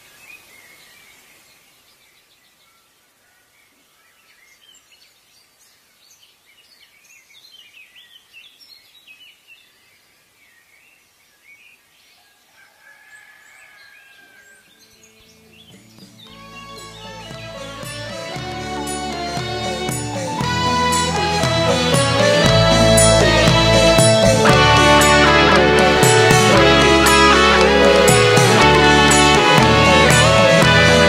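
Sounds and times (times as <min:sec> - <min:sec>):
music: 0:15.4 - 0:31.0.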